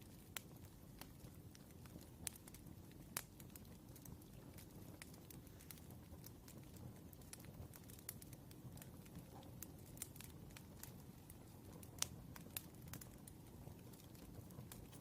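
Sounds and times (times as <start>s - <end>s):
fire crackling: 0.0s - 15.0s
sharp fire pops: 0.0s - 15.0s.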